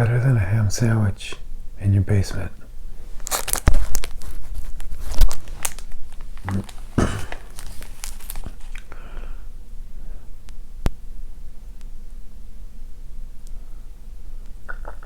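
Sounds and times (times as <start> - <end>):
crinkling handling noise: 3.0 - 9.0.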